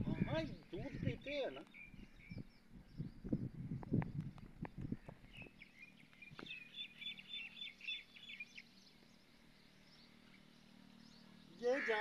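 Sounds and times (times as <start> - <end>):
faint steady hum: 0.0 - 12.0
small bird chirping: 0.2 - 11.6.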